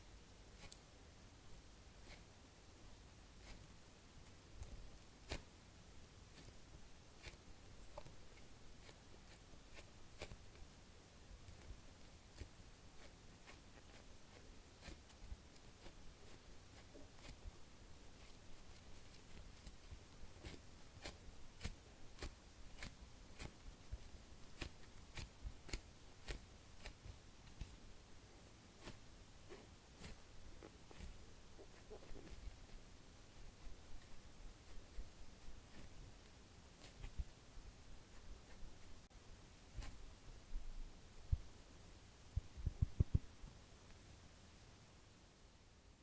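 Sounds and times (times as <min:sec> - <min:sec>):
foam toy taps and clicks: 0:42.6 - 0:43.3.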